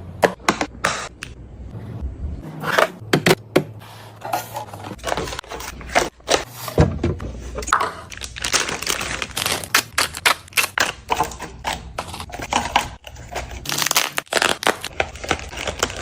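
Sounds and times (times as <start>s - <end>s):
kitchen items knocking and clinking: 0.1s - 1.4s, 2.6s - 13.7s.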